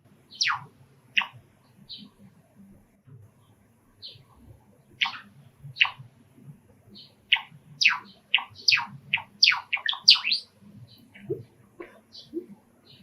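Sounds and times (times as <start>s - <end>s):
sparrow chirping song: 0.3s - 2.3s, 4.0s - 4.4s, 5.0s - 6.0s, 6.9s - 11.4s, 12.0s - 13.0s.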